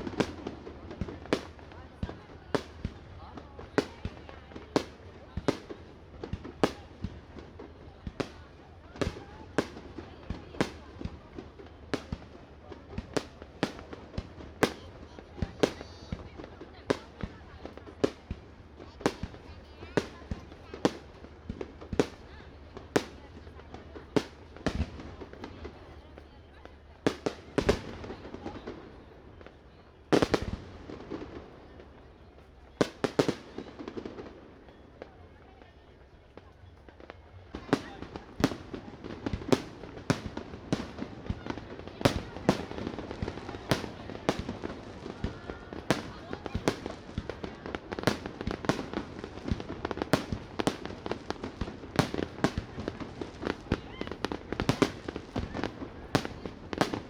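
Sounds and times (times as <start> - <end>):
fireworks rumble: 0.0 - 57.0
crackling pops: 36.4 - 57.0.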